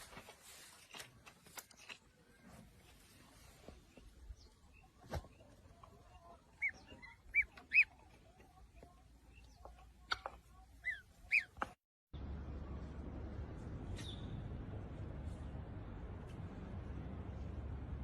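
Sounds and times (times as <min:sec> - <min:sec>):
small bird chirping: 0:04.3 - 0:11.7, 0:14.0 - 0:14.4.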